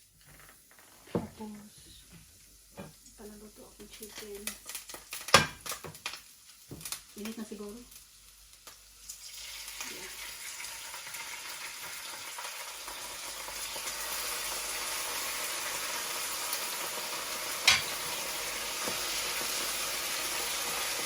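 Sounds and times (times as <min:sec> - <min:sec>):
chicken sizzling in a pan: 0:00.0 - 0:21.0
utensil knocking on pan: 0:17.7 - 0:18.0.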